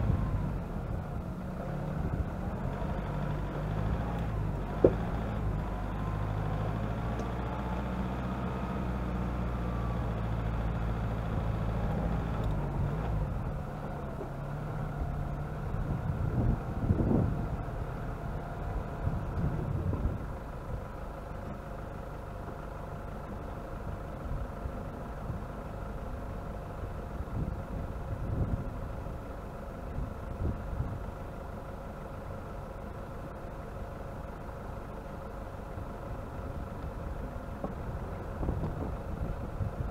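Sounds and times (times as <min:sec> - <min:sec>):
low rumbles from bumps: 0:00.0 - 0:07.9, 0:09.0 - 0:20.9, 0:36.4 - 0:39.9
vehicle engine running at low revs: 0:00.0 - 0:39.9.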